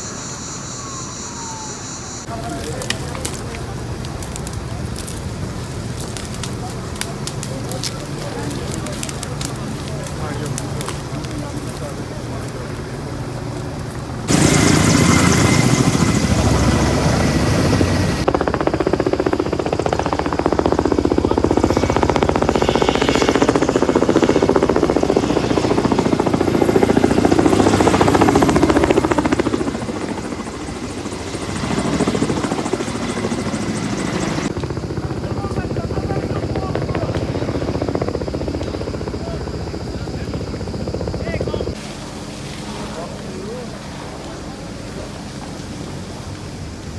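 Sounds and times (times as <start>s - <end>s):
helicopter rotor chopping: 0.0s - 46.9s.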